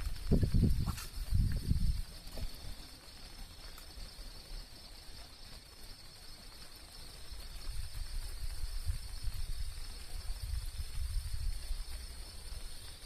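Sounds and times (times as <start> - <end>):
low rumble on microphone: 0.0 - 3.0, 7.3 - 13.0.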